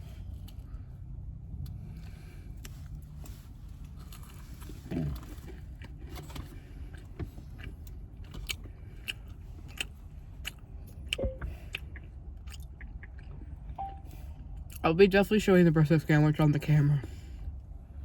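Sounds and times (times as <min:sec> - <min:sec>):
low hum inside a car: 0:00.0 - 0:18.0
cookie crunching while chewed: 0:03.8 - 0:11.0, 0:12.4 - 0:13.5.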